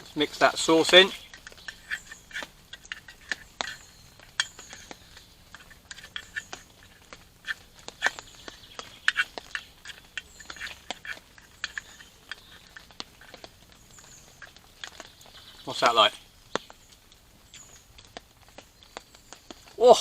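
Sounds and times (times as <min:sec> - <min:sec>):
spatula scraping a pan: 0:00.6 - 0:15.0.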